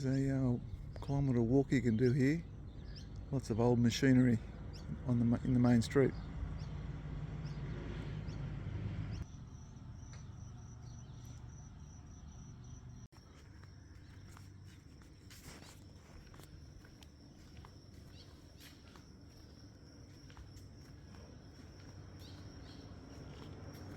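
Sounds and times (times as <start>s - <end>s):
low rumble: 0.0s - 3.8s
high-pitched insect drone: 9.2s - 23.9s.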